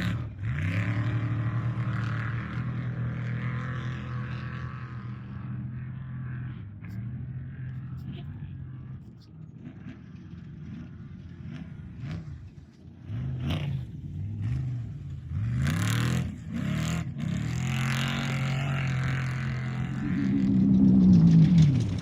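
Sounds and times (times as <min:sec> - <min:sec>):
race vehicle engine revving: 0:00.0 - 0:22.0
rush of noise: 0:19.4 - 0:22.0.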